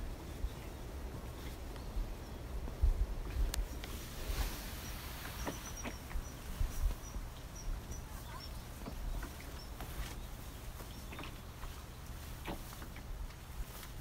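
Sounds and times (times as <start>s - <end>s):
low rumble of outdoor air: 0.0s - 14.0s
small bird chirping: 4.7s - 12.3s.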